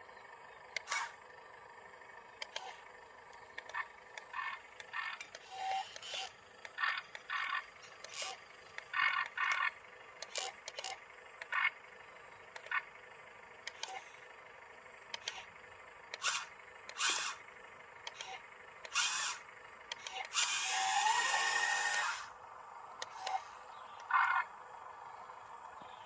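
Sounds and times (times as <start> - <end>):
small electric motors whirring: 0.7 - 1.2, 2.4 - 11.8, 13.6 - 14.3, 15.1 - 22.4, 23.0 - 24.5.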